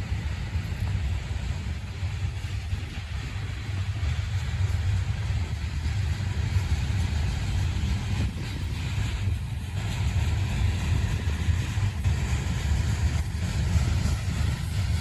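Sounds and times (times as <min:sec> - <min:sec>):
freight train cars rolling: 0:00.0 - 0:15.0
rail noise: 0:00.0 - 0:15.0.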